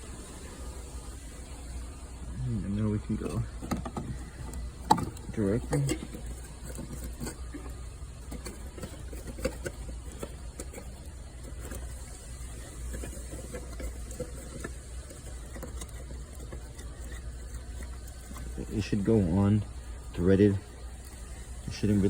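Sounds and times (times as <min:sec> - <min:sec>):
steady low hum: 0:00.0 - 0:22.0
clicks and scrapes of handling: 0:03.0 - 0:22.0.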